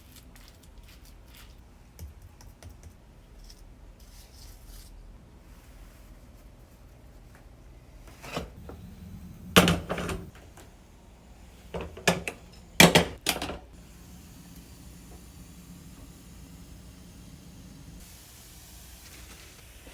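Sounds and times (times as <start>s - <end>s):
cookware clattering and knocking: 8.4s - 10.4s, 11.7s - 13.7s.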